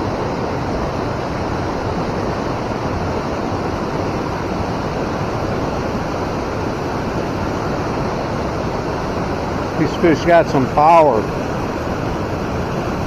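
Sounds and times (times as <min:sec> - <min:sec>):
river water rushing through rapids: 0:00.0 - 0:13.0.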